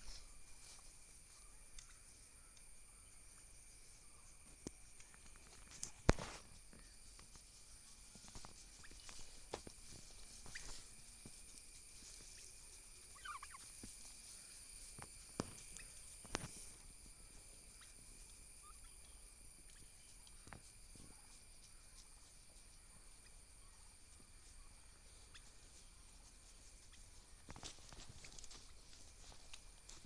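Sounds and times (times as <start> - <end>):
turkey call: 6.2 - 20.4, 23.2 - 28.6.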